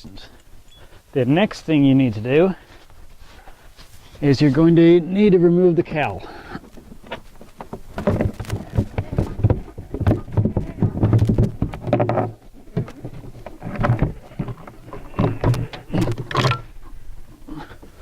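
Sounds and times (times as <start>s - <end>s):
engine cowl clunking and rattling: 6.6s - 16.8s.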